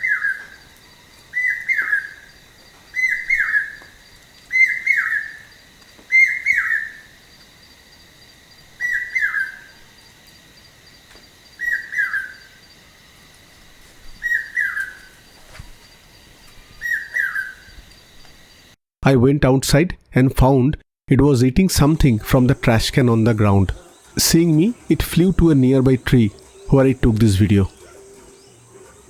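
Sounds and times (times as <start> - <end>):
bird call with falling notes: 16.6 - 17.7.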